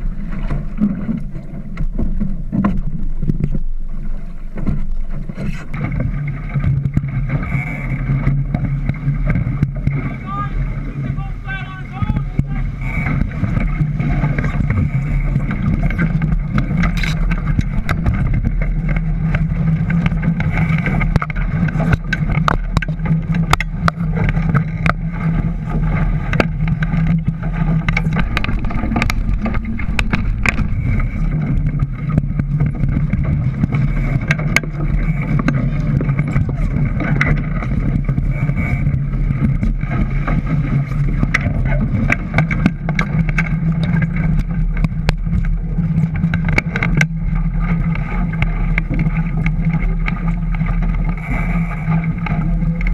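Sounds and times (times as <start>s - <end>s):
boat motor running: 0.0s - 52.9s.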